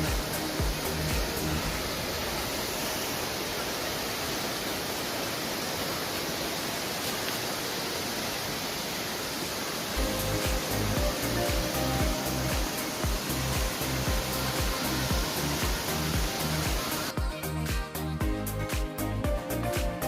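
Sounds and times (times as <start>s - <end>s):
music with a beat: 0.0s - 1.7s, 10.0s - 20.0s
waterfall roaring: 0.0s - 17.2s.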